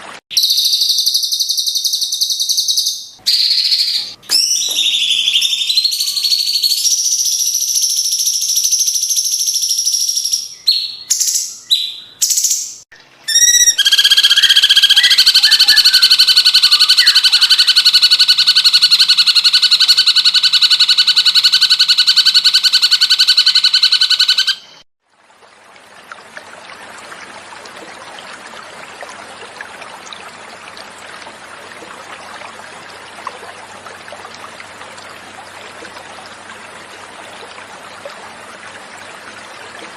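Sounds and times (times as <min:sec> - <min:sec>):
flowing water: 0:00.0 - 0:00.2, 0:25.0 - 0:39.9
bird whistling and trilling: 0:00.4 - 0:24.8.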